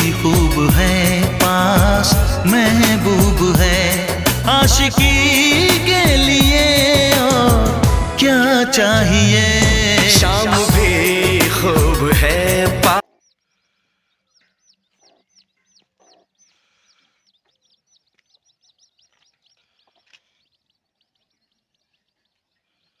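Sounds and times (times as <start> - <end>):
pop song: 0.0 - 13.0
chicks chirping: 0.0 - 23.0
chickens clucking: 14.3 - 23.0.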